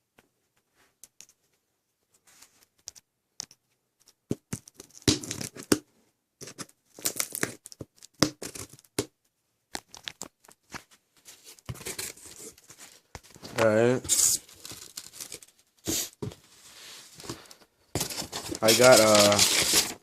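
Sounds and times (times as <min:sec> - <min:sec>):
package tearing and crinkling: 0:14.1 - 0:15.6, 0:18.0 - 0:20.0.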